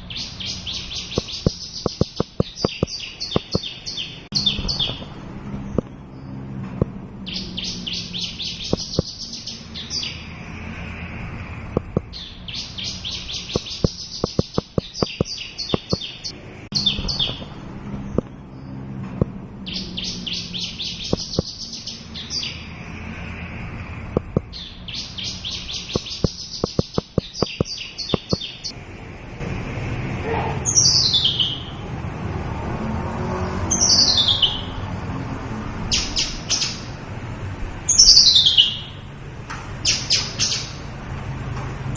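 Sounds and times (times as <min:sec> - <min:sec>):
lark singing buzzy trills: 0:00.0 - 0:05.1, 0:07.3 - 0:10.2, 0:11.8 - 0:17.5, 0:19.7 - 0:22.6, 0:24.2 - 0:28.7
sharp clicks: 0:01.1 - 0:03.7, 0:08.7 - 0:09.2, 0:11.8 - 0:12.1, 0:13.5 - 0:16.2, 0:21.1 - 0:21.6, 0:24.2 - 0:24.6, 0:25.9 - 0:28.5.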